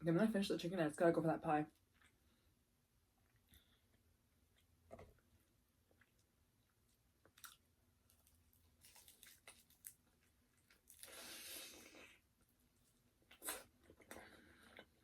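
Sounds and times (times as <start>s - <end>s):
chewing crunchy fried chicken: 7.2s - 12.2s.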